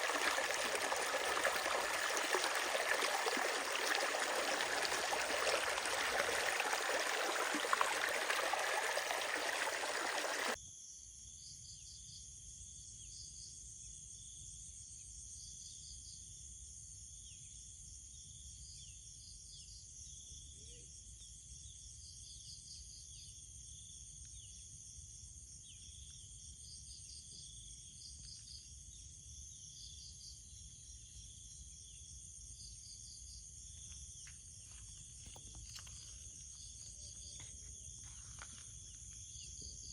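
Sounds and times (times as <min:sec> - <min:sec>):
insects trilling: 0:00.0 - 0:10.6.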